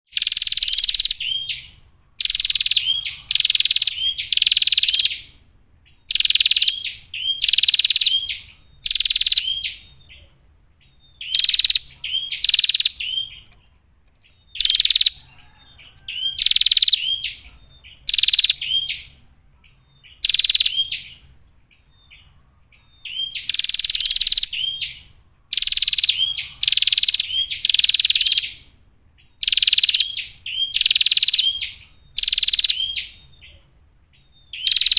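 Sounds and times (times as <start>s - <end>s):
bird rasping calls: 0.2s - 5.3s, 11.2s - 13.7s, 14.5s - 19.2s, 22.1s - 28.6s.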